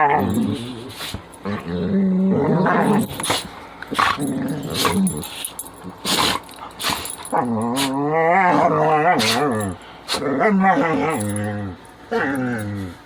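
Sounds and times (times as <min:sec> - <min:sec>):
dog warbling grumble: 0:00.0 - 0:05.3, 0:06.0 - 0:13.0
dog sneezing: 0:00.9 - 0:01.3, 0:04.8 - 0:07.2, 0:09.2 - 0:09.5.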